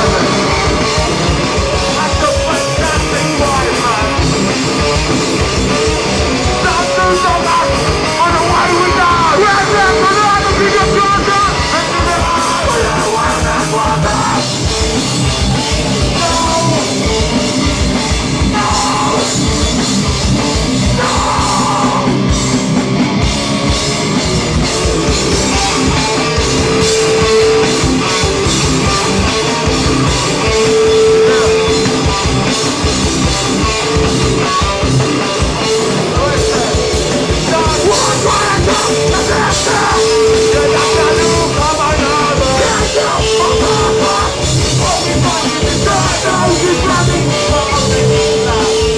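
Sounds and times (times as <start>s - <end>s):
distorted guitars: 0.0s - 48.9s
pounding drums: 0.0s - 48.9s
vocals: 0.0s - 48.9s.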